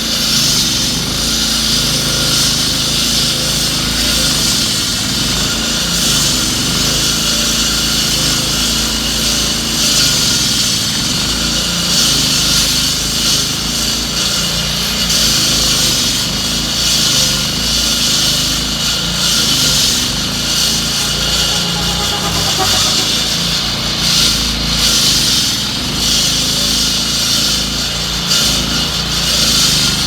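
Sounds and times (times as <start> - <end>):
low engine drone: 19.2 - 24.8.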